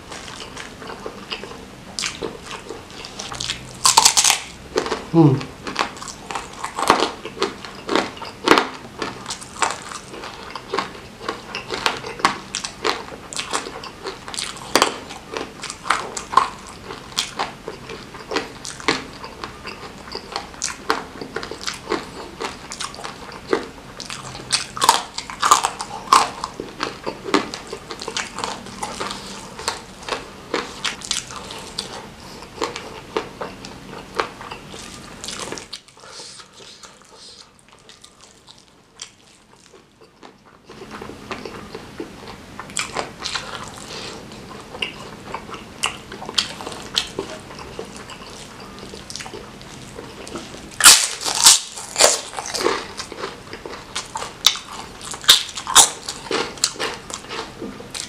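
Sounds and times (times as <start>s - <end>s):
wet chewing and smacking: 0.0s - 58.0s.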